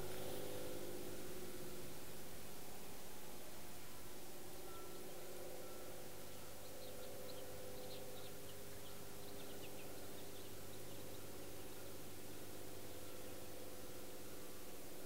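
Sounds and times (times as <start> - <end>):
low hum: 0.0 - 15.0
small bird chirping: 4.6 - 11.9.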